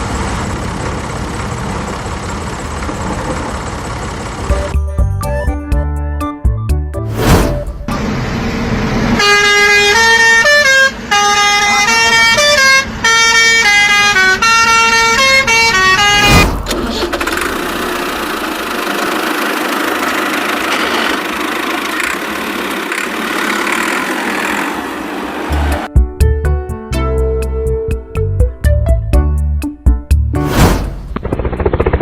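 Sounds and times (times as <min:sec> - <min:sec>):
musical car horn: 0:09.1 - 0:16.5.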